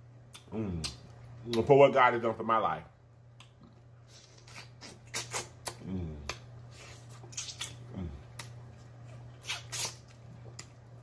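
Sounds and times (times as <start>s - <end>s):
low electrical hum: 0.0s - 11.0s
person humming mm: 0.4s - 1.0s, 5.1s - 7.0s, 7.6s - 8.5s
wet chewing and lip-smacking: 3.3s - 11.0s.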